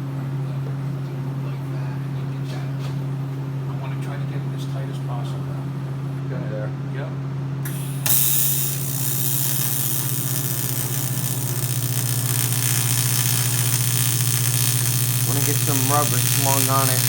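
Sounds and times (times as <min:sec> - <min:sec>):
constant low hum: 0:00.0 - 0:17.0
welding arc hissing: 0:07.6 - 0:17.0.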